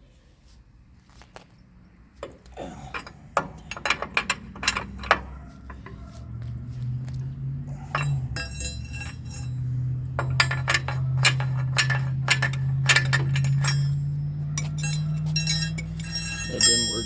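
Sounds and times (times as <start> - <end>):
excavator engine running: 2.7 - 17.0
metal parts clanking: 2.9 - 6.0, 7.3 - 17.0.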